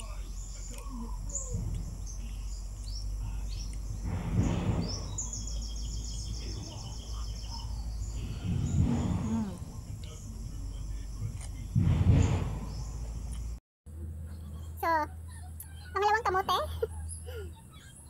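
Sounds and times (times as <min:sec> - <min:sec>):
birds chirping: 0:00.0 - 0:13.6, 0:14.2 - 0:18.0
muffled noise bursts: 0:00.0 - 0:14.3.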